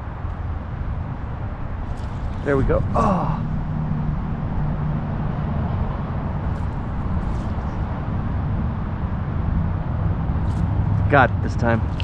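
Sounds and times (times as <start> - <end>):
distant engine rumble: 1.6 - 12.0.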